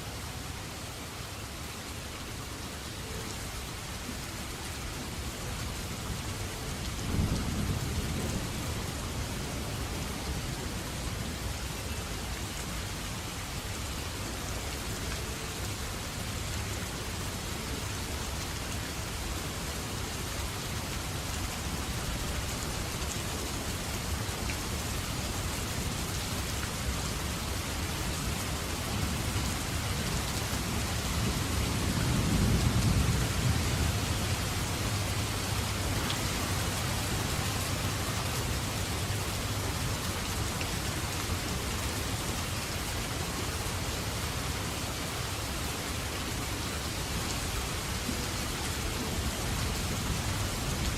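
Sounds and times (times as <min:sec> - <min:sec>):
steady rainfall hissing: 0:00.0 - 0:50.9
low rumble of thunder: 0:06.8 - 0:11.4, 0:29.0 - 0:35.8.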